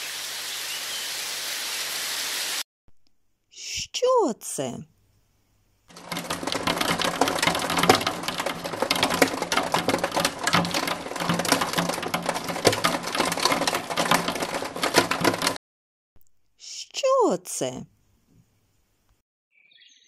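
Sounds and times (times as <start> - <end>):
hailstones clattering: 5.9 - 15.6.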